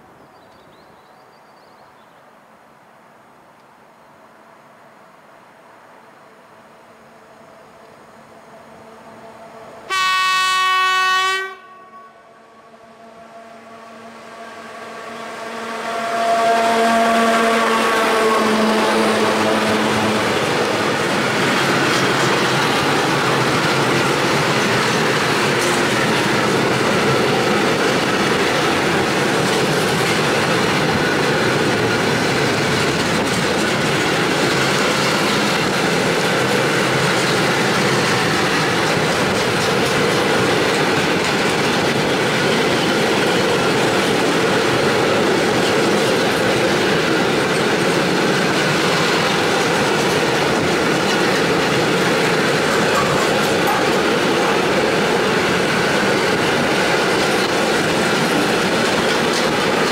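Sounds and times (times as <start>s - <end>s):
electric locomotive tones: 7.2s - 59.9s
freight train wheels on rails: 13.6s - 59.9s.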